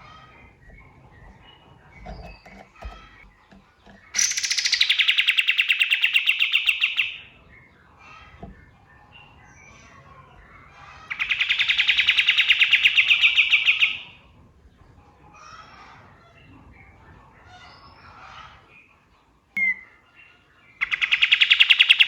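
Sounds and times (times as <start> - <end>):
songbird pulsing trills: 0.3 - 7.3.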